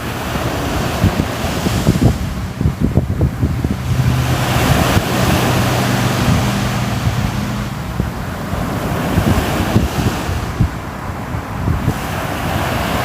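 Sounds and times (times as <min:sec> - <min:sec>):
sea waves surf hiss: 0:00.0 - 0:13.0
low rumble: 0:01.7 - 0:09.7.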